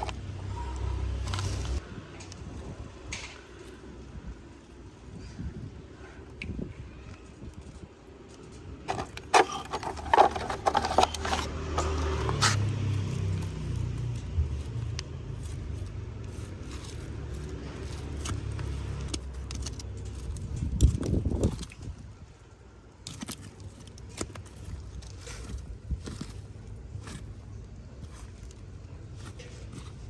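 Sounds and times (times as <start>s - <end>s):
scraping and rubbing on keyboard: 8.9s - 20.4s, 28.0s - 30.0s.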